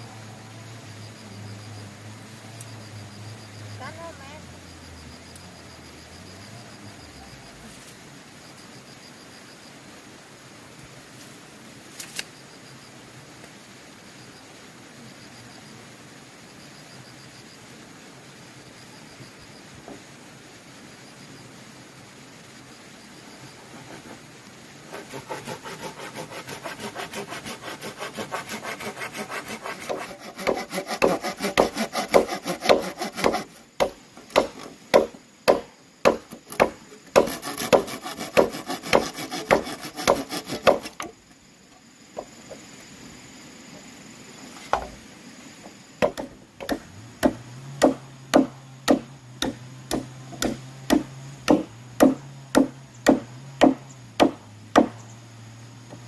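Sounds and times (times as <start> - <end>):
sawing bamboo: 23.6 - 24.2, 24.8 - 41.1, 46.0 - 55.0
sharp blows on bamboo: 24.9 - 41.1, 46.0 - 55.1.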